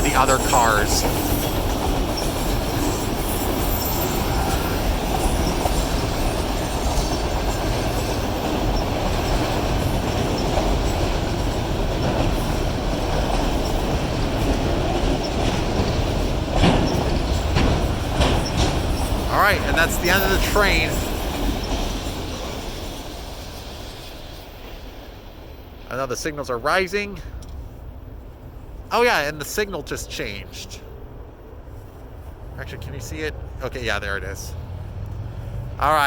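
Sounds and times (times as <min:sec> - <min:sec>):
sharp knocks of railcars: 0:00.0 - 0:25.0
train wheels on track: 0:00.0 - 0:36.0.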